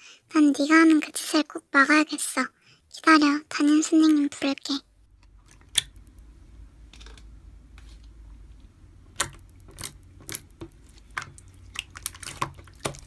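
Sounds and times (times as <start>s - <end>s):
low steady hum: 2.5s - 13.0s.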